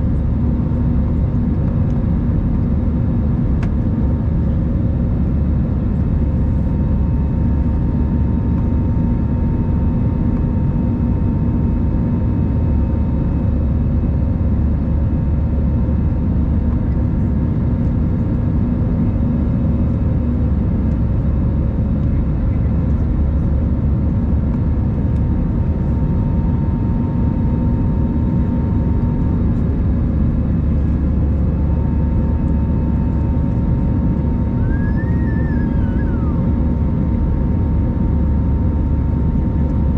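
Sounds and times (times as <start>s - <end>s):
engine and airflow rush: 0.0s - 39.9s
humming engine tones: 16.1s - 39.9s.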